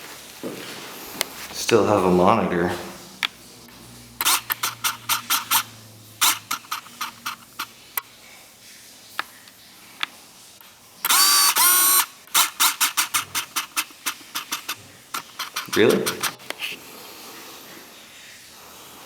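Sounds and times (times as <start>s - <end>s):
irregular clicks and knocks: 11.1s - 16.6s.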